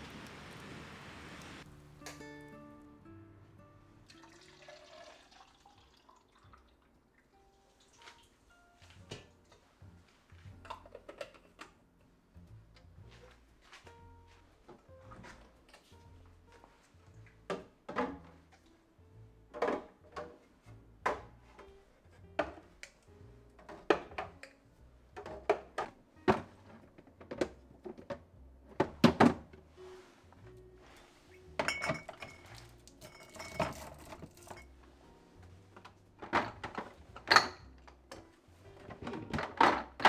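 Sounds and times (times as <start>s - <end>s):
soft background music: 1.6s - 40.0s
kitchen items knocking and clinking: 10.4s - 11.8s, 17.2s - 18.6s, 19.5s - 23.0s, 23.6s - 29.6s, 31.6s - 40.0s.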